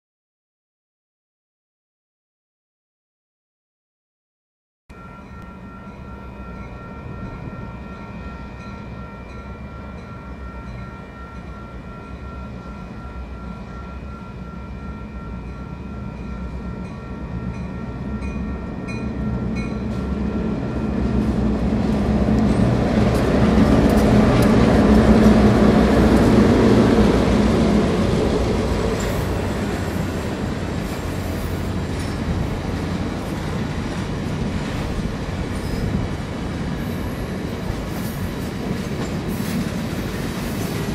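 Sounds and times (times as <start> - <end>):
diesel locomotive engines passing: 4.9 - 40.9
grade-crossing bell ringing: 4.9 - 40.9
wheels clicking over rail joints: 21.9 - 26.5.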